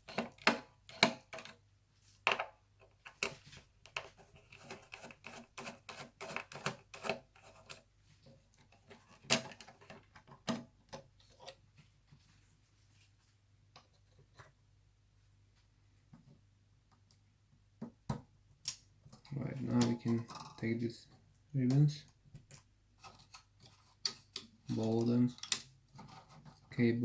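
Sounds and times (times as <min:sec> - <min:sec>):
small parts clicking and clattering: 0:22.5 - 0:26.4.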